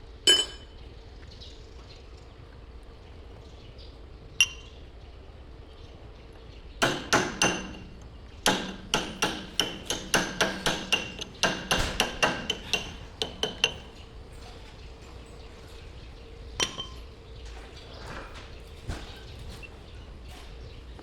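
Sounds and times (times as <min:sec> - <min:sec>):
hammer striking metal: 0:00.3 - 0:00.7, 0:06.8 - 0:13.9.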